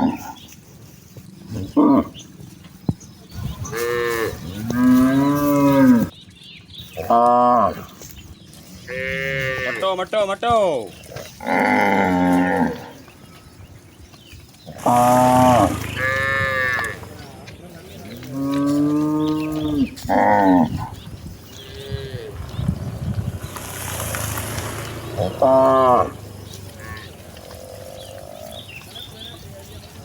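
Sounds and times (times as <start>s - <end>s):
cattle mooing: 3.7s - 6.1s, 11.4s - 13.0s, 14.7s - 17.1s, 18.3s - 22.8s, 24.4s - 28.7s.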